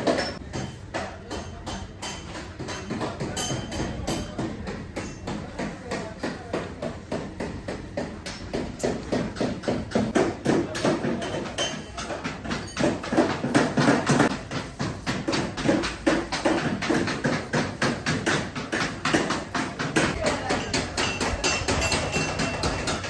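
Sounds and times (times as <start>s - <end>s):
hammer blows on sheet metal: 0.0s - 23.0s.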